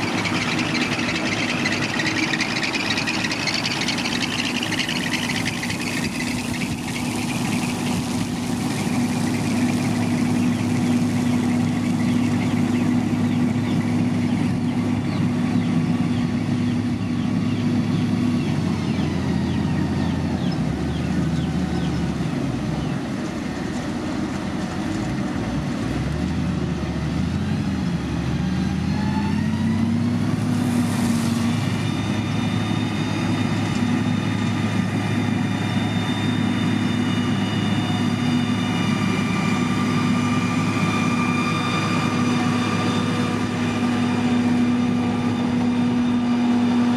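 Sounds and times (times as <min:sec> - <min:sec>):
heavy machinery engine running: 0:00.0 - 0:46.9.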